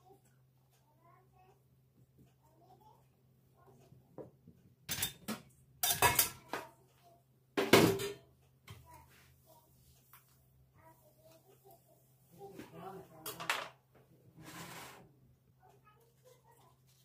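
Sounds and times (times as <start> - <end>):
dishes and cutlery clattering: 4.8 - 6.8, 7.6 - 8.3, 13.2 - 13.8.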